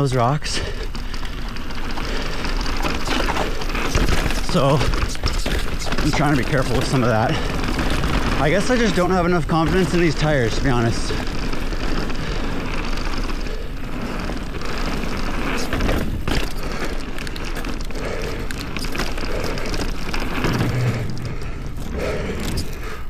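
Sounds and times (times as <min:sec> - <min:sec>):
bike knocking and rattling: 0:00.0 - 0:23.0
bike tyres rolling over rocks: 0:00.0 - 0:23.0.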